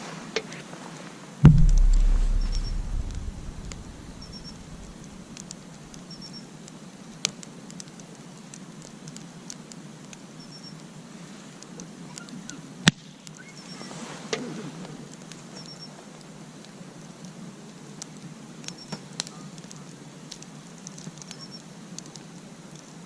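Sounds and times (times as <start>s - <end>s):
loud low rumble: 1.4s - 5.2s
campfire crackling and popping: 1.4s - 10.9s, 15.0s - 23.0s
faint high chirps: 1.6s - 5.1s.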